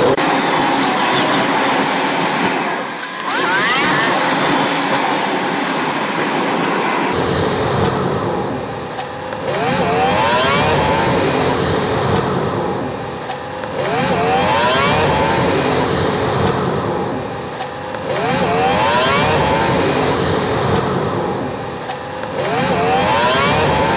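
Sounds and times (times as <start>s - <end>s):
engine accelerating: 7.0s - 23.9s.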